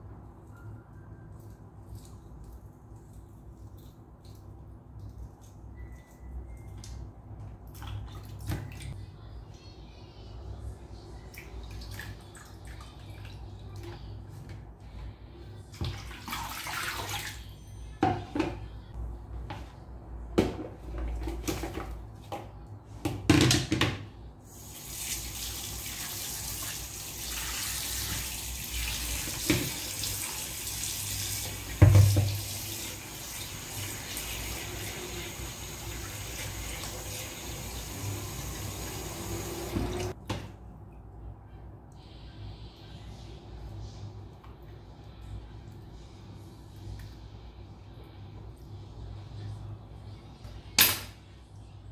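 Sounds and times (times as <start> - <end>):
tap water running into basin: 24.7 - 40.2.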